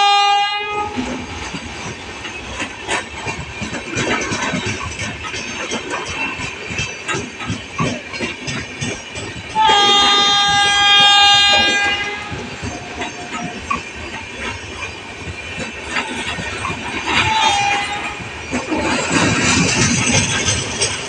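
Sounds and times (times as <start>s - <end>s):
locomotive horn blast: 0.0s - 1.0s, 9.6s - 12.5s, 17.2s - 18.2s
train wheels clattering over rail joints: 0.7s - 21.0s.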